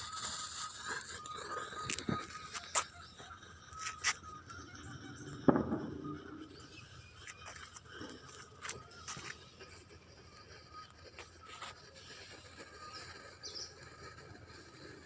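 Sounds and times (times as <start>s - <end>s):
firework powder pops and crackles: 0.0s - 15.0s
loud sharp crack: 5.4s - 6.0s.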